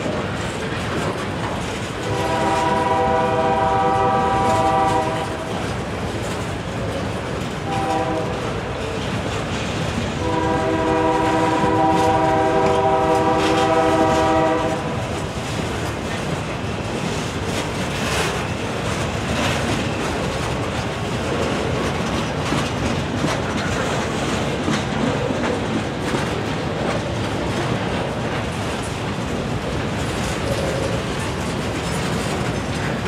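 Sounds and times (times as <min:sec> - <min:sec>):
train wheels rumbling on rails: 0:00.0 - 0:33.0
wheels clacking over rail joints: 0:00.0 - 0:33.0
locomotive air horn chord: 0:02.0 - 0:05.5, 0:07.7 - 0:08.5, 0:10.2 - 0:14.9.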